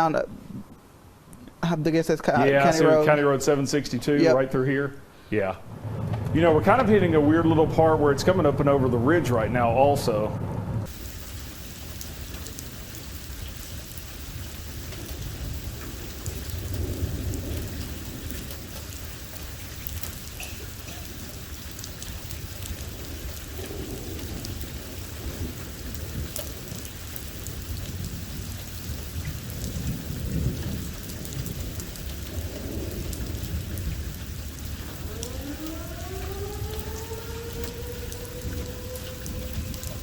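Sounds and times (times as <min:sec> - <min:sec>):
rolling thunder: 0:05.6 - 0:40.0
heavy rain falling: 0:05.8 - 0:08.9, 0:10.9 - 0:40.0.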